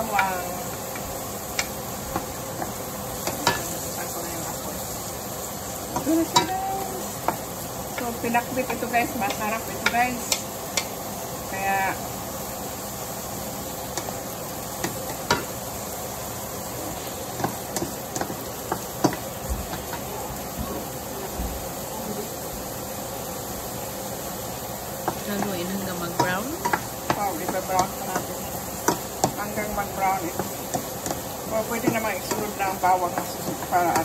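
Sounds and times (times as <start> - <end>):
onions sizzling in hot oil: 0.0 - 34.0
spatula scraping and clicking on pan: 26.2 - 29.7.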